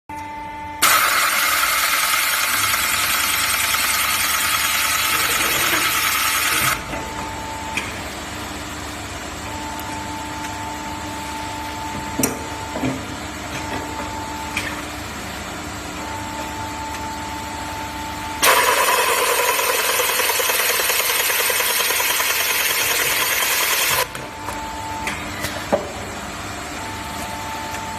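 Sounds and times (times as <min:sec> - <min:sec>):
machine whine: 0:00.2 - 0:07.9, 0:16.0 - 0:25.5
loud machine hiss: 0:00.8 - 0:06.8, 0:18.4 - 0:24.0.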